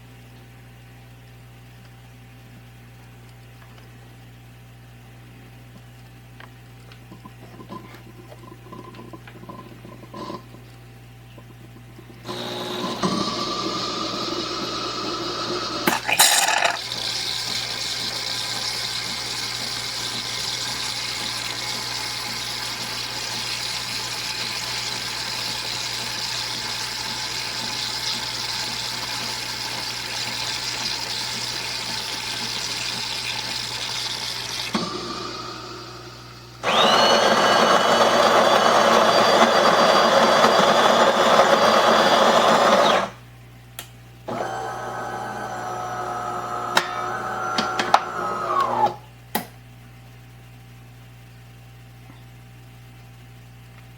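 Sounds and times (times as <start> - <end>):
espresso machine whirring and buzzing: 12.2 - 43.2, 44.3 - 49.0.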